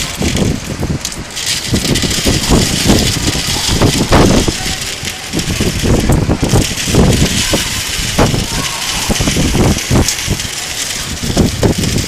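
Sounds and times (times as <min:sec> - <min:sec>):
heavy rain hissing: 0:00.0 - 0:12.0
low rumbling surges: 0:00.0 - 0:12.0.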